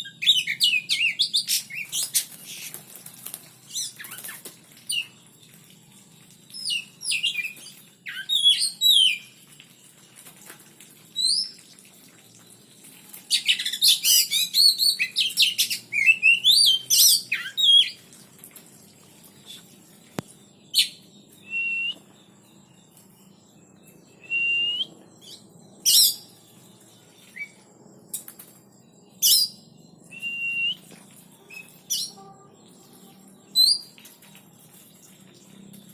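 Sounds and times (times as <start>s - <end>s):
birds whistling and chirping: 0.0s - 3.0s, 3.6s - 9.4s, 11.1s - 11.6s, 13.1s - 18.1s, 19.3s - 35.9s
bird song: 0.0s - 10.0s, 12.4s - 35.9s.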